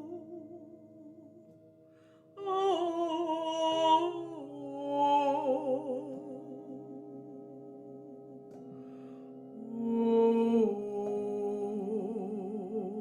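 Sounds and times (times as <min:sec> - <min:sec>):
woman singing wordlessly: 0:02.4 - 0:07.1, 0:09.6 - 0:13.0.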